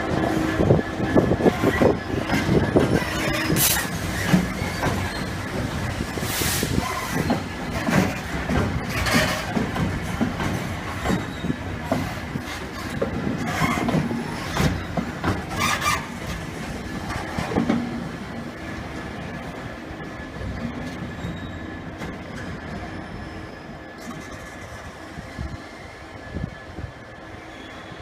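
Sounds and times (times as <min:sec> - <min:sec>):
train wheels knocking on rail joints: 0:00.0 - 0:18.1
train hissing and squealing: 0:01.5 - 0:07.9, 0:13.5 - 0:16.3, 0:21.1 - 0:28.0.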